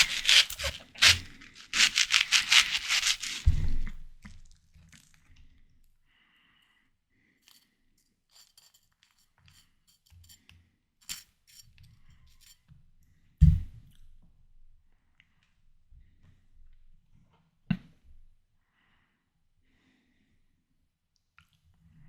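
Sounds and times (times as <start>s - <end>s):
wet chewing of watermelon: 0.0s - 5.2s.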